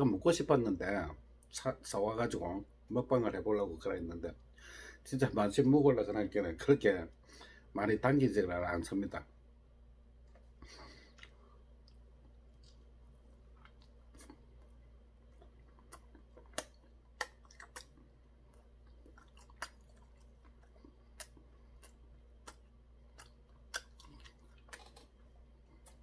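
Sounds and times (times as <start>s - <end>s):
faint low hum: 0.0s - 26.0s
crispy food crunching: 10.8s - 26.0s.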